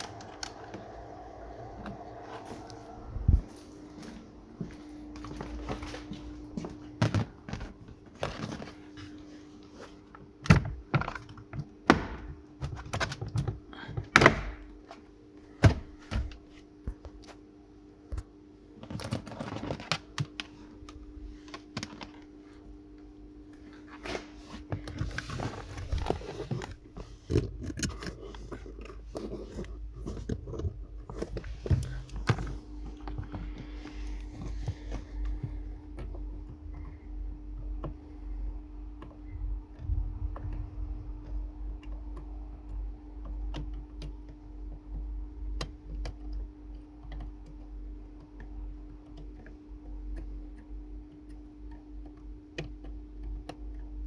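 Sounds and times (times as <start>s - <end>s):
steady low hum: 0.0s - 54.0s
knocks clicks and thuds: 39.0s - 46.2s.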